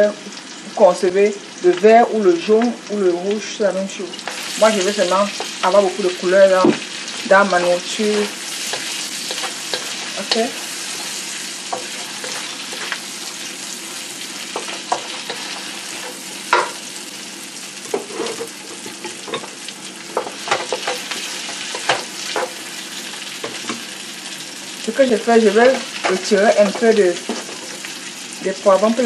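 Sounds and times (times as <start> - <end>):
vegetables sizzling in a wok: 0.0 - 29.0
wooden spatula scraping a pan: 8.2 - 13.5, 17.9 - 19.5.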